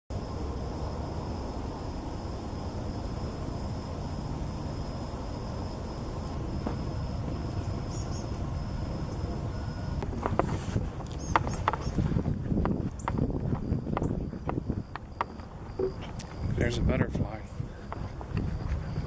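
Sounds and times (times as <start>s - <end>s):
high-pitched insect drone: 0.2s - 10.0s, 13.7s - 16.6s
bird chirps: 7.9s - 8.3s.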